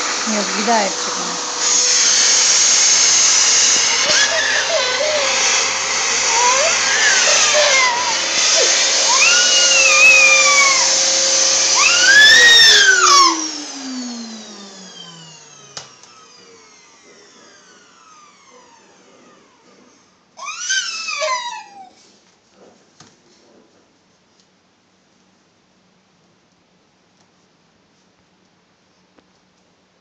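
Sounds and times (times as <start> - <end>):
vacuum cleaner running: 0.0 - 21.8
baby squealing: 3.7 - 11.0, 11.8 - 13.5, 20.4 - 22.0.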